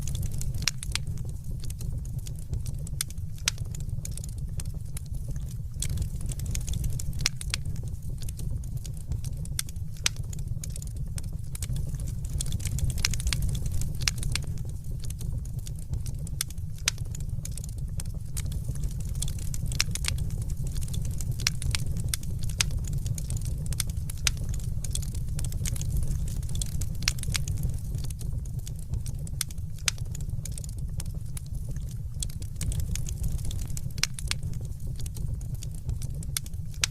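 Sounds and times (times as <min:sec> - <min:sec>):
wood fire crackling: 0:00.0 - 0:36.9.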